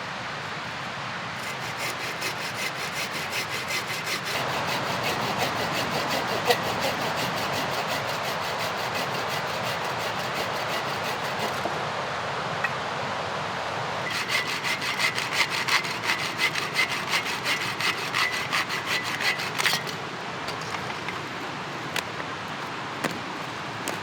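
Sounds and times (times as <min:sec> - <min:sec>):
hand saw cutting wood: 0:01.3 - 0:11.8, 0:14.0 - 0:24.0.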